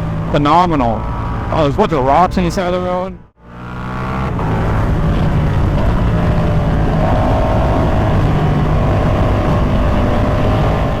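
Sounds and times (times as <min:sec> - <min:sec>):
motorcycle engine running: 0:03.4 - 0:11.0
wind rushing over microphone: 0:04.1 - 0:11.0.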